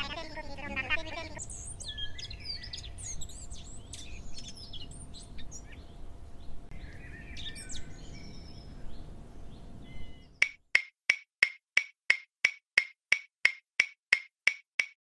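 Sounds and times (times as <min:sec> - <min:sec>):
birds chirping and singing: 0:00.0 - 0:10.4.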